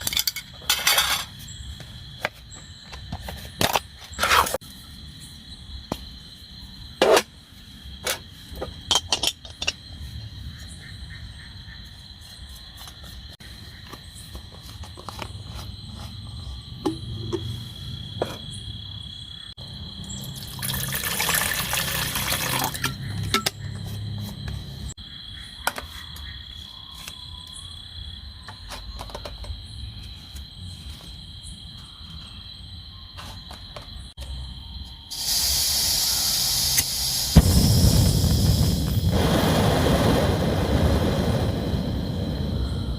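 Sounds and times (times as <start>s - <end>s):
night insects chirring: 0.0s - 42.9s
burst of hissing noise: 35.1s - 42.6s.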